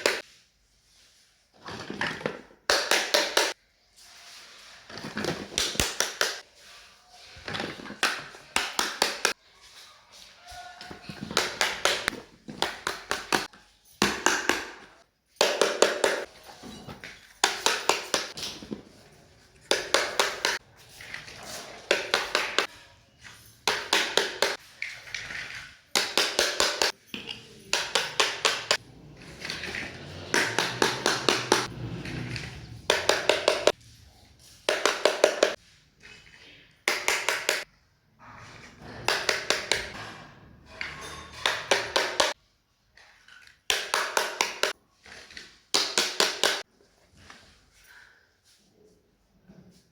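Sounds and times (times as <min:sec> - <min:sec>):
soft rubbing and handling: 0:00.2 - 0:01.6, 0:03.6 - 0:05.5, 0:06.4 - 0:08.5.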